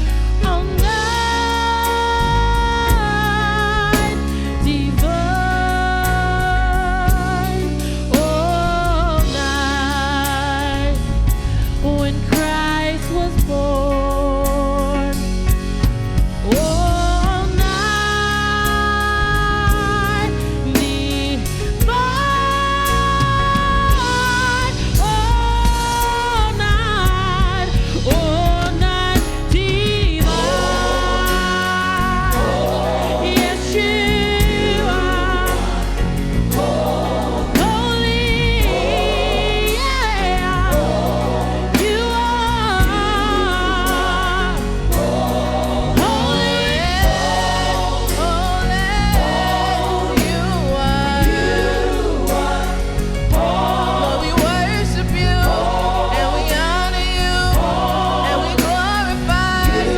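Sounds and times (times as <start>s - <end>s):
choir singing with vibrato: 0.0s - 11.0s, 29.2s - 59.9s
band with sustained bass: 0.0s - 59.9s.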